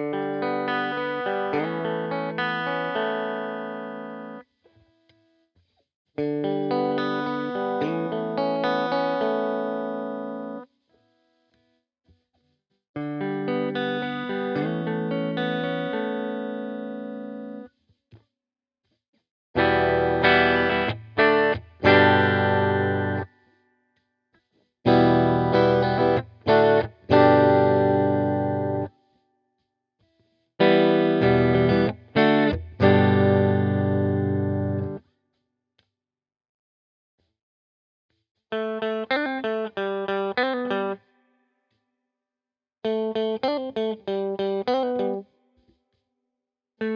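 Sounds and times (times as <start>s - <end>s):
clean electric guitar chords: 0.0s - 4.4s, 6.2s - 10.6s, 13.0s - 17.6s, 19.6s - 23.3s, 24.9s - 28.9s, 30.6s - 35.0s, 38.6s - 41.0s, 42.9s - 45.2s.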